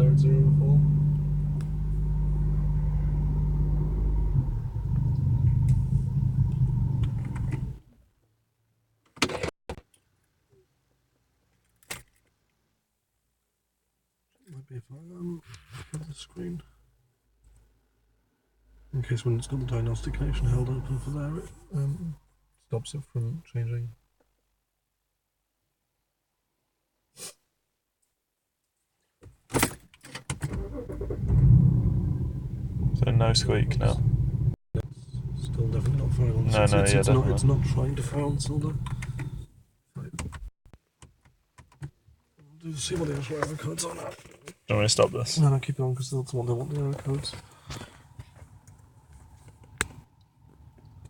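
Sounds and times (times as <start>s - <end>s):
car engine misfiring: 30.5s - 39.4s.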